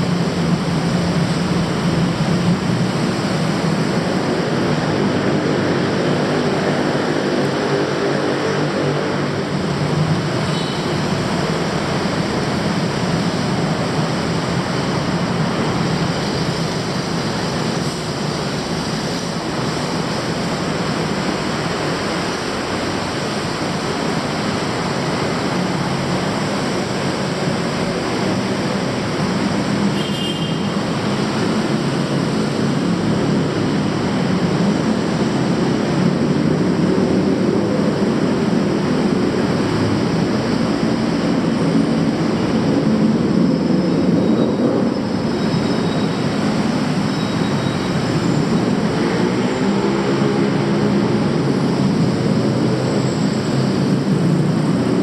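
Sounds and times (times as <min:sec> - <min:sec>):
heavy traffic rumble: 0:00.0 - 0:55.0
faint high squeals: 0:43.4 - 0:48.7.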